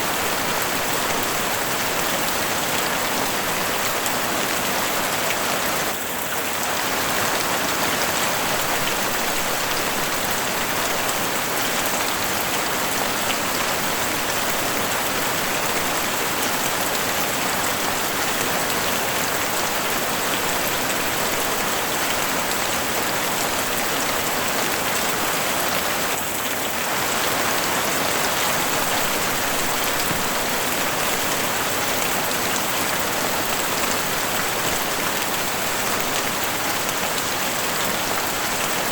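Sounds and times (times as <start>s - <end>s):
heavy rain on roof: 0.0s - 38.9s.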